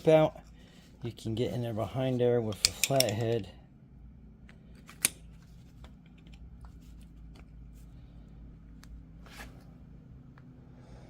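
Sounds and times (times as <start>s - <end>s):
steady low hum: 0.0s - 11.0s
screwdriver clicking and scraping metal: 2.5s - 3.4s.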